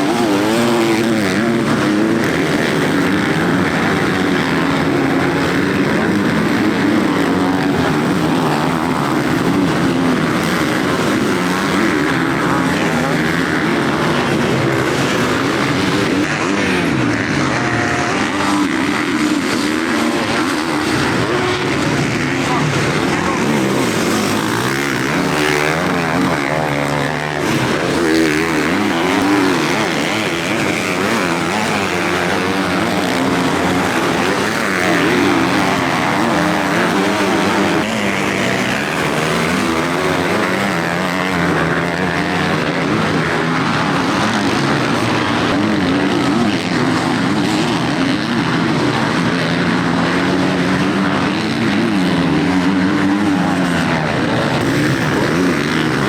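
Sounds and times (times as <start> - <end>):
motocross bike engines revving: 0.0 - 56.0.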